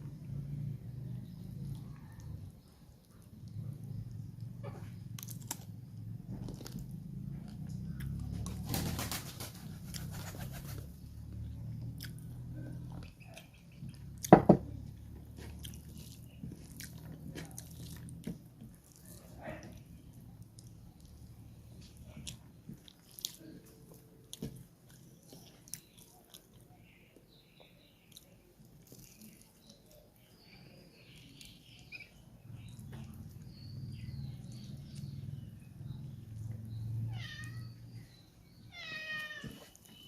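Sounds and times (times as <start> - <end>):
wet chewing sounds: 1.6 - 8.2, 11.3 - 14.4, 15.0 - 21.2, 21.8 - 32.0
cat meowing: 37.0 - 37.8, 38.7 - 39.7.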